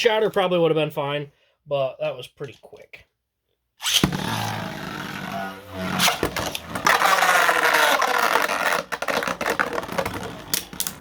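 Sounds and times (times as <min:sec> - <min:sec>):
spinning tops whirring and scraping: 0:03.8 - 0:10.8.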